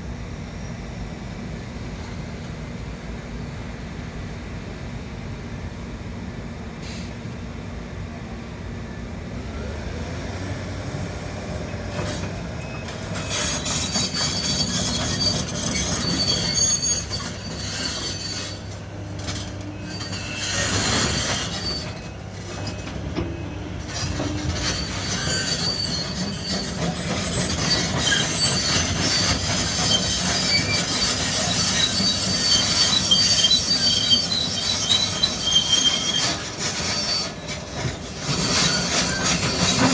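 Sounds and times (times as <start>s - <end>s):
diesel engine rumbling: 0.0s - 39.9s
metallic squealing and scraping: 11.9s - 39.9s.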